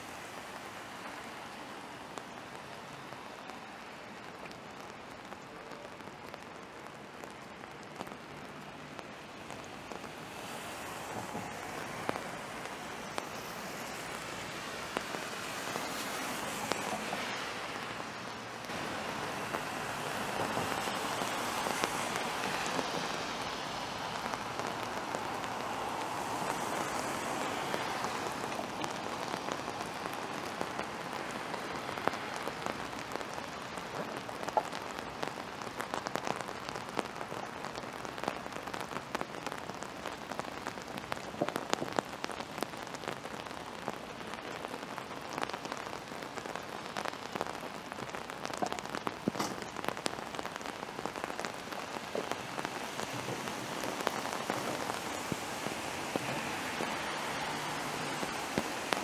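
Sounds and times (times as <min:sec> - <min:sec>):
steady rain falling: 0:00.0 - 0:59.0
sharp raindrop impacts: 0:00.1 - 0:59.0.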